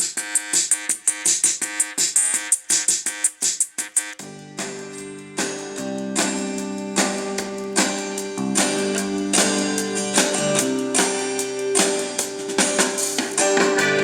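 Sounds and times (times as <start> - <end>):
strummed guitar chords: 4.2 - 14.0.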